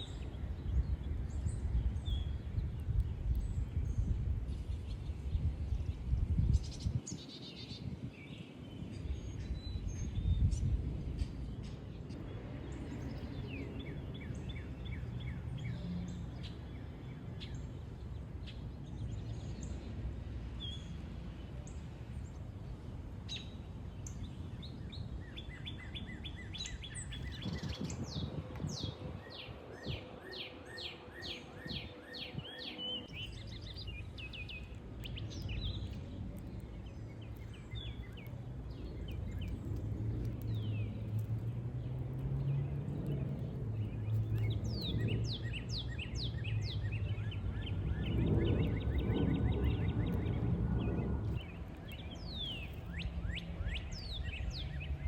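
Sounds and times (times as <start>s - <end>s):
songbirds chirping: 0.0s - 55.0s
low outdoor rumble: 33.0s - 55.0s.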